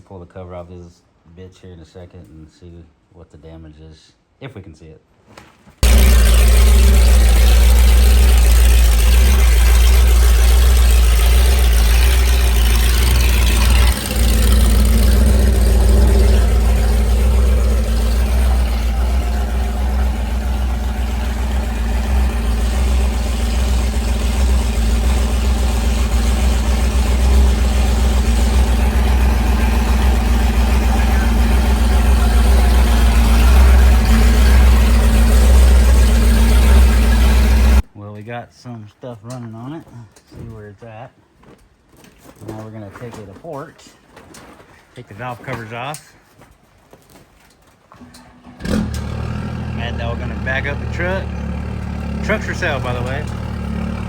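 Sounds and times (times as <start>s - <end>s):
large engine idling: 5.8s - 37.8s, 48.1s - 54.0s.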